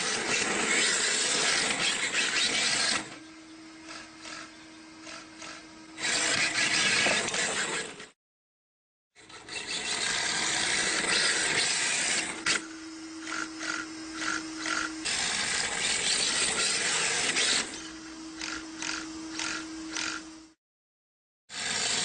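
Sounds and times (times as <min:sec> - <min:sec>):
electric motor whine: 0:00.0 - 0:08.2, 0:09.2 - 0:20.6, 0:21.5 - 0:22.0.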